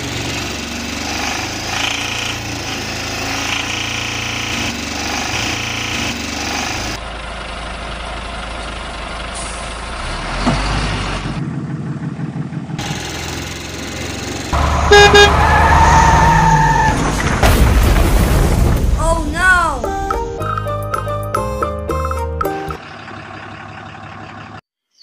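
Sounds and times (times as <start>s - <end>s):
vehicle horn honking: 14.6s - 15.6s.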